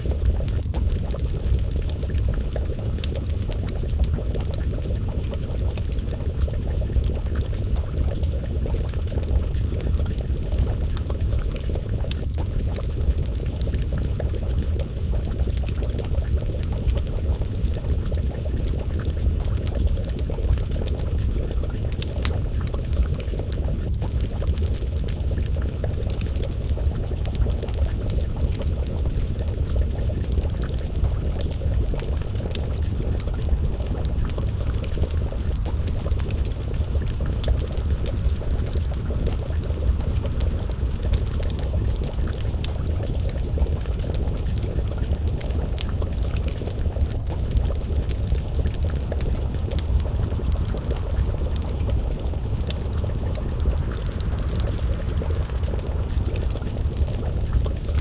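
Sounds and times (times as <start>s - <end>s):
stew bubbling in a pot: 0.0s - 58.0s
wood fire crackling: 0.0s - 58.0s.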